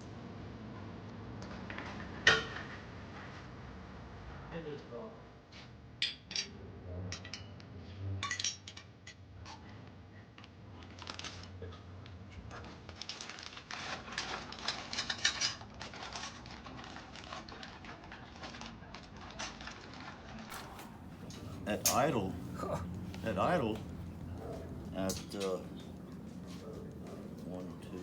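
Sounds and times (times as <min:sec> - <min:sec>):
metal parts clinking and rattling: 0:06.0 - 0:06.5, 0:08.2 - 0:09.2, 0:13.0 - 0:16.6.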